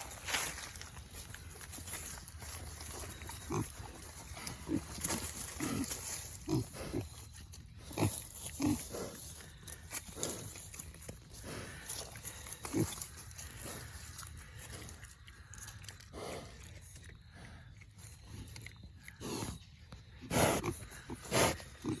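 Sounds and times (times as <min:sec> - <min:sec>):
pigs grunting: 0:01.1 - 0:19.6, 0:20.2 - 0:22.0.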